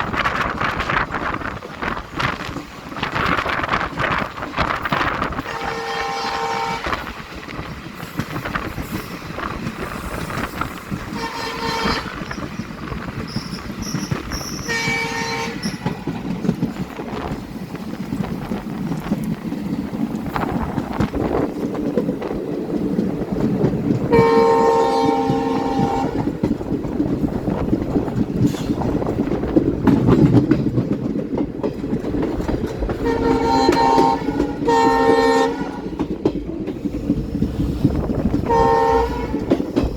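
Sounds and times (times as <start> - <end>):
moving train rumble and clatter: 0.0 - 39.9
train horn blasts: 5.4 - 7.1, 11.1 - 12.4, 14.6 - 16.0, 24.1 - 26.3, 33.0 - 36.0, 38.4 - 39.6.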